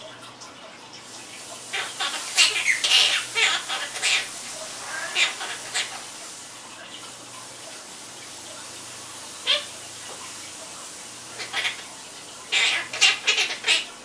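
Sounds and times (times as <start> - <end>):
steady background hiss: 0.0 - 14.0
parrot chirps: 1.6 - 6.2, 9.4 - 9.7, 11.3 - 11.9, 12.5 - 13.9
parrot squawk: 1.7 - 6.2, 9.4 - 9.8, 11.2 - 14.0.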